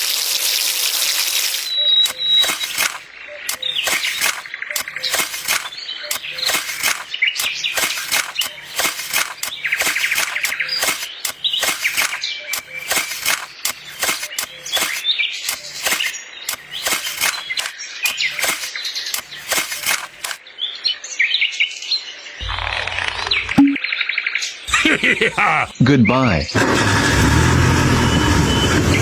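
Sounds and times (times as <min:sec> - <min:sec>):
small birds chirping: 0:00.7 - 0:26.6
sharp clicks and taps: 0:02.0 - 0:20.4, 0:22.4 - 0:23.8.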